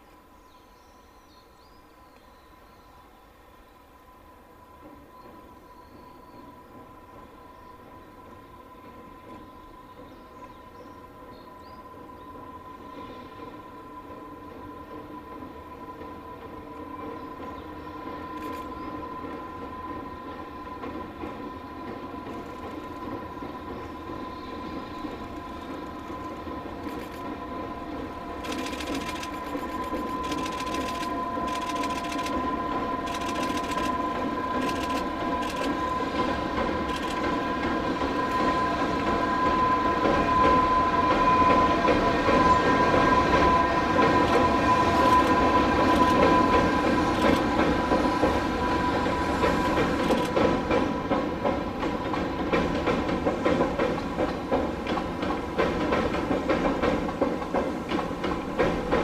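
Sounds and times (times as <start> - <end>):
train wheels rumbling: 1.1 - 59.0
wheels clicking over rail joints: 20.8 - 27.4, 49.1 - 59.0.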